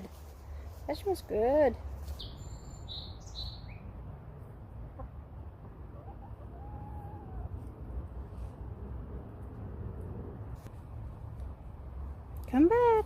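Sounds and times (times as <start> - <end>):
hens clucking softly: 4.8 - 8.6.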